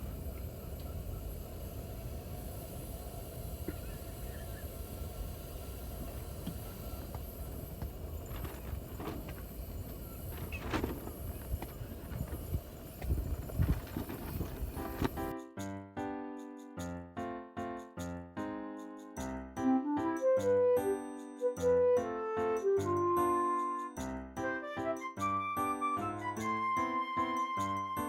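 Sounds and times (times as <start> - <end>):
wind buffeting microphone: 0.0 - 15.3.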